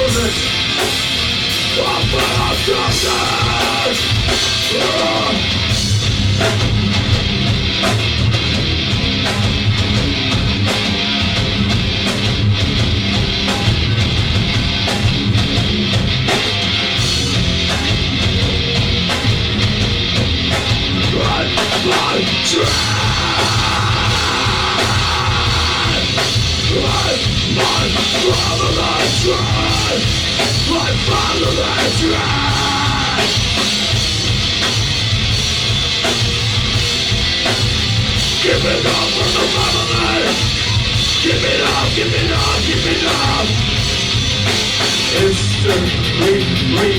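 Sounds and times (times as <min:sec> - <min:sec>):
distorted guitars: 0:00.0 - 0:46.9
heavy drums: 0:00.0 - 0:46.9
rock band playing live: 0:00.0 - 0:46.9
shouted vocals: 0:01.8 - 0:05.5, 0:21.1 - 0:33.4.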